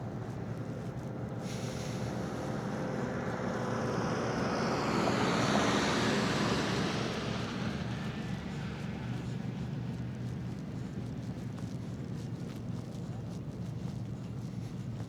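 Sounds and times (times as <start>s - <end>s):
motor vehicle passing by: 0.9s - 11.7s.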